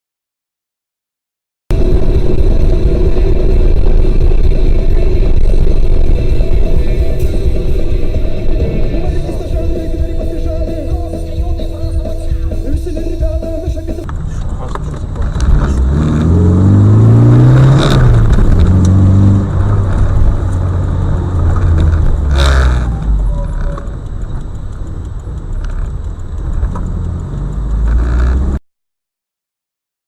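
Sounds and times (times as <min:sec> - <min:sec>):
sharp burst of noise: 0:01.7 - 0:14.1
car engine revving: 0:01.7 - 0:28.6.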